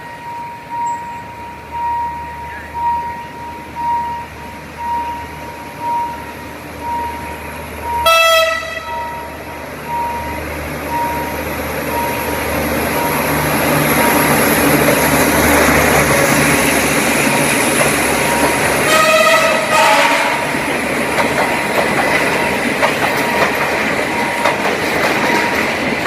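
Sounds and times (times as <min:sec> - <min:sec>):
train running noise: 0:00.0 - 0:26.0
locomotive horn blast: 0:08.0 - 0:09.4, 0:18.8 - 0:20.5.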